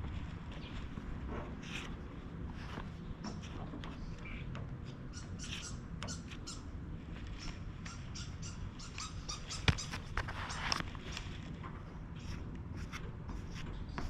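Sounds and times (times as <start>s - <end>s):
steady low hum: 0.0s - 14.0s
plastic spreader scraping and squeaking: 9.5s - 11.5s.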